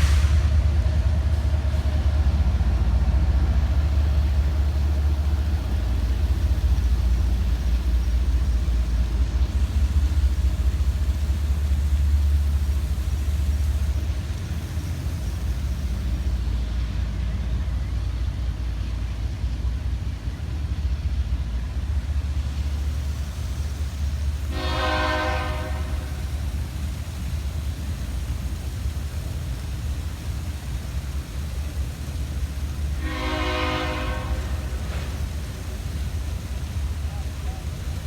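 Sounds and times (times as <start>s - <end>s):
freight train rumbling: 0.0s - 38.0s
locomotive horn blasts: 24.4s - 26.3s, 33.0s - 35.2s.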